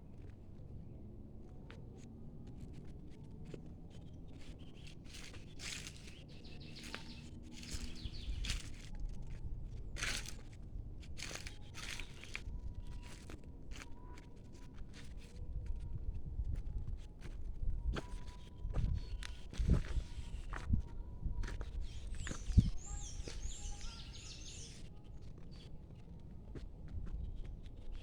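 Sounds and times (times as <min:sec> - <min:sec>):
rustling and crunching: 0:04.4 - 0:15.4
faint bird chirps: 0:17.8 - 0:26.2.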